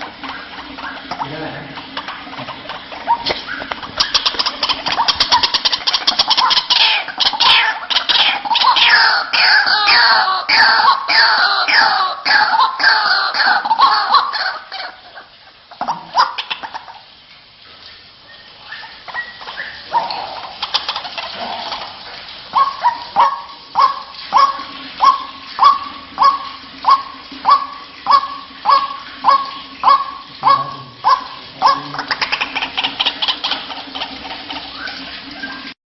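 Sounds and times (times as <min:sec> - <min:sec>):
clicks and croaks: 0:00.0 - 0:08.8, 0:19.1 - 0:22.3
waterhen calls: 0:00.0 - 0:35.8.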